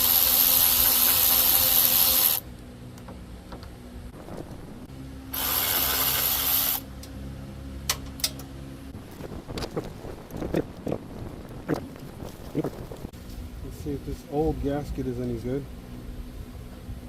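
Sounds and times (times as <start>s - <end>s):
hissing blasts: 5.3s - 6.8s.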